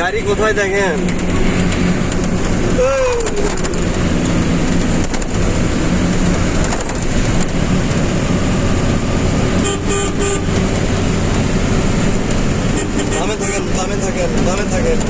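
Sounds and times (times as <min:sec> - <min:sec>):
road traffic engines: 0:00.0 - 0:15.0
car horn honking: 0:09.6 - 0:10.6, 0:12.6 - 0:14.1.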